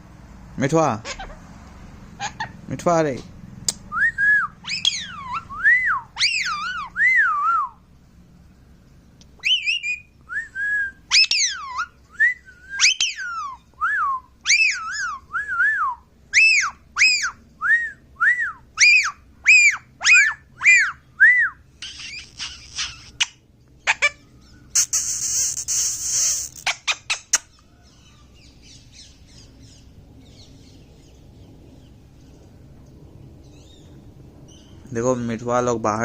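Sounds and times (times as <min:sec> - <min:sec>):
parrot scratchy chattering: 0:01.0 - 0:01.5, 0:02.1 - 0:02.6, 0:21.8 - 0:27.6
parrot whistling: 0:03.9 - 0:07.8, 0:09.4 - 0:27.8.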